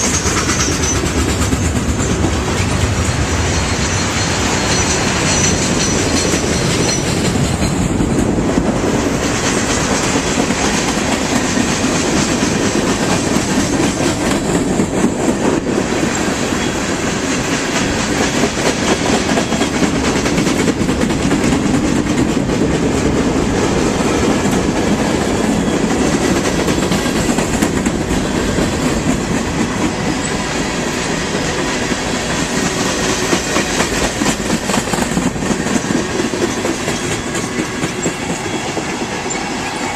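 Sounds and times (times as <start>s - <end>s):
train cars rumbling past: 0.0s - 39.9s
wheels clicking over rail joints: 31.4s - 39.9s.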